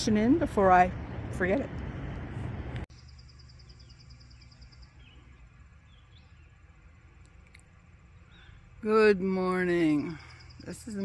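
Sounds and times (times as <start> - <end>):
low steady rumble: 0.0 - 10.5
bird trill: 2.9 - 6.7, 9.9 - 11.0
faint bird chirps: 2.9 - 6.7, 8.1 - 8.8, 9.9 - 11.0.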